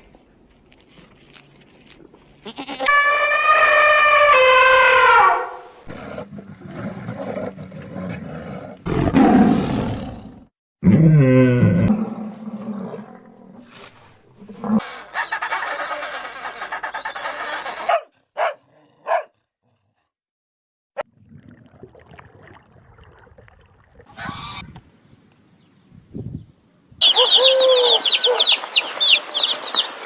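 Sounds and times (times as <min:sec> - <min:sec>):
animal calls: 0:14.6 - 0:18.5, 0:27.0 - 0:28.6.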